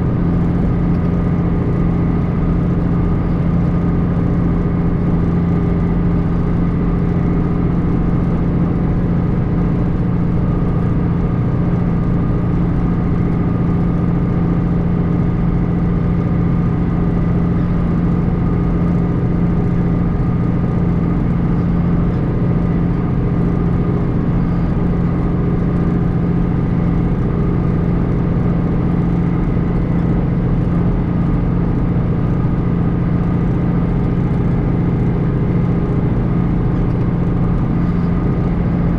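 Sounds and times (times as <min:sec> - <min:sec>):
tractor diesel engine drone: 0:00.0 - 0:38.9.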